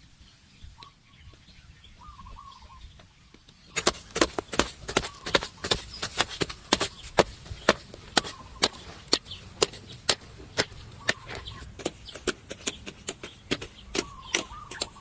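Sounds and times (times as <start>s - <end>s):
hand tool striking wood: 3.7s - 15.0s.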